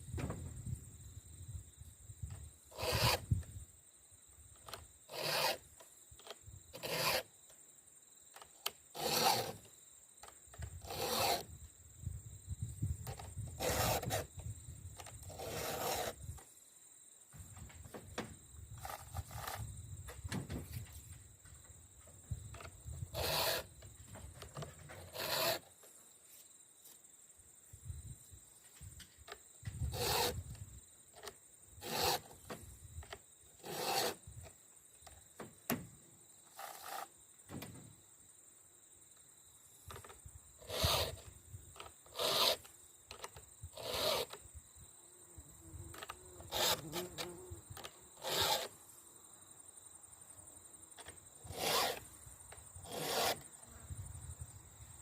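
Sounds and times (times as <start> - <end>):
file rasping on chainsaw chain: 2.7 - 3.2, 5.1 - 5.7, 6.8 - 7.3, 9.0 - 9.6, 10.8 - 11.5, 13.1 - 14.3, 15.3 - 16.2, 23.1 - 23.7, 25.0 - 25.7, 29.9 - 30.4, 31.8 - 32.4, 33.6 - 34.2, 36.5 - 37.1, 40.6 - 41.2, 42.1 - 42.7, 43.8 - 44.4, 46.4 - 47.2, 48.2 - 48.8, 51.5 - 52.1, 52.8 - 53.5.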